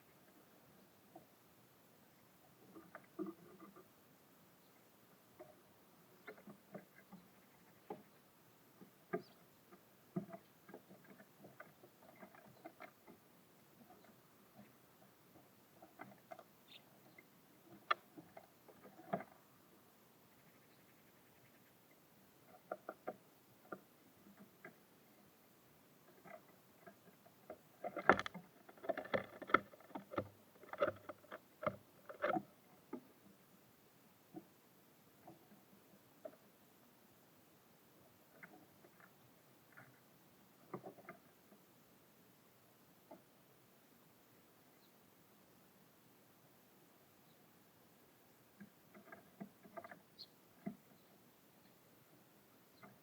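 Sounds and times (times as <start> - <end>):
birds pecking at feeder: 4.7 - 33.4.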